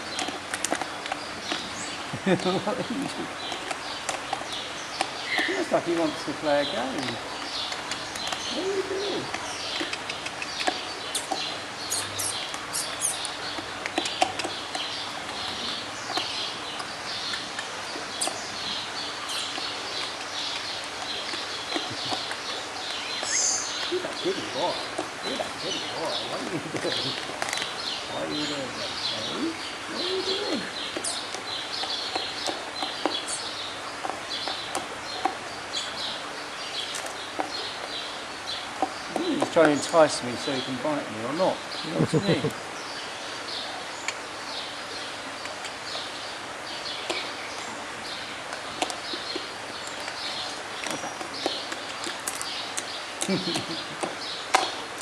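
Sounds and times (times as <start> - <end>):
small birds chirping: 0.0 - 55.0
sharp clicks and ticks: 6.8 - 8.5, 9.2 - 18.4.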